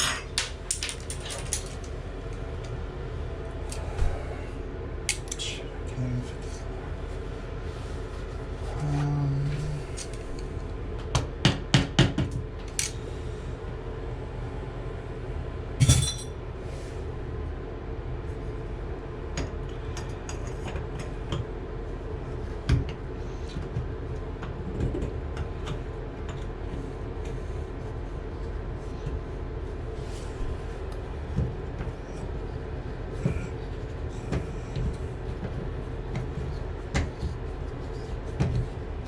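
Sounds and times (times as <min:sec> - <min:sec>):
steady low hum: 0:00.0 - 0:39.0
tools clinking on metal pipes: 0:15.8 - 0:16.3.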